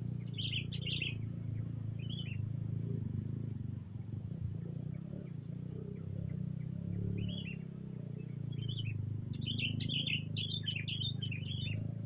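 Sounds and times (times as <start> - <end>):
small songbirds chirping: 0.0 - 12.0
steady low hum: 0.0 - 12.0.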